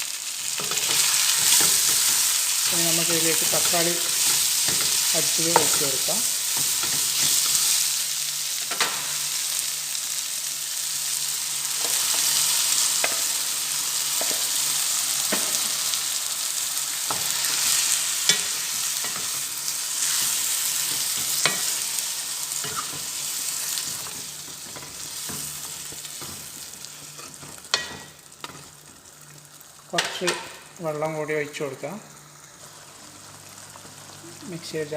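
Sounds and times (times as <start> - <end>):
food sizzling in oil: 0.0 - 34.9
spoon scraping a pan: 22.5 - 28.7.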